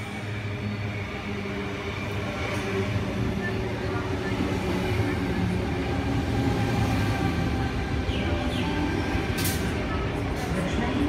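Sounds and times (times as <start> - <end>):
faint train hum: 0.0 - 11.0
train rumble: 0.0 - 11.0.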